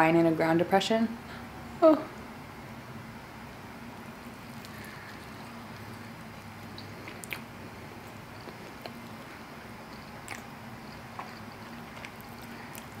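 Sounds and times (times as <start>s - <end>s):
steady low hiss: 0.0s - 13.0s
person chewing: 4.4s - 13.0s
wet mouth clicks: 6.6s - 7.5s, 10.0s - 13.0s.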